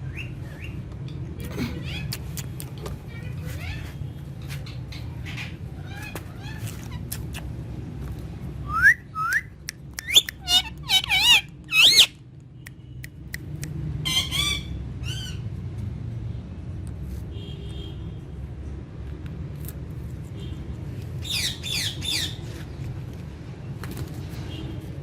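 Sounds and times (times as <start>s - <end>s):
parrot whistles and squawks: 8.6s - 12.2s, 14.0s - 15.4s.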